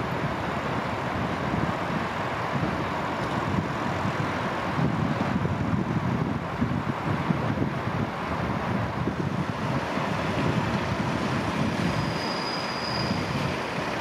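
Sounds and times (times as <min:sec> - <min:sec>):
train coaches rumbling: 0:00.0 - 0:14.0
wind buffeting microphone: 0:00.0 - 0:14.0
high wheel squeal: 0:11.1 - 0:14.0.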